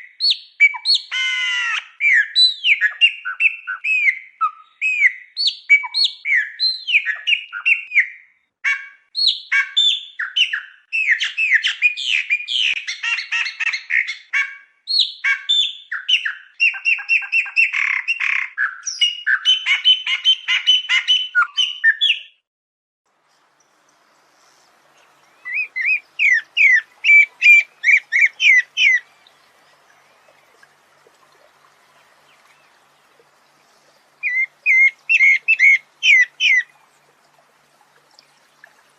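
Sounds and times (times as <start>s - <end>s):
songbird singing: 0.0s - 22.4s, 23.2s - 37.4s
faint hiss: 23.1s - 38.9s.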